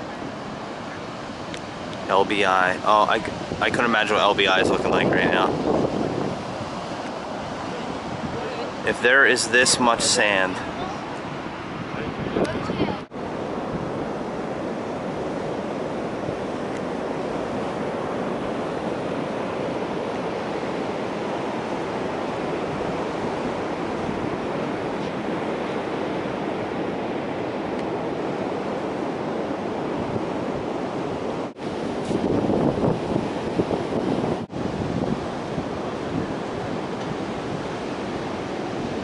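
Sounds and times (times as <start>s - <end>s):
waves breaking: 0.0s - 39.0s
wind buffeting microphone: 0.0s - 39.0s.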